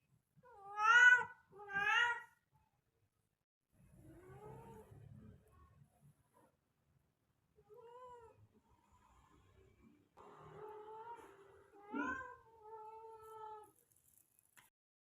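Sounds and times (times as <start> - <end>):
cat meowing: 0.4 - 2.4, 10.6 - 13.8
cat yowling: 0.5 - 2.4, 10.9 - 13.7.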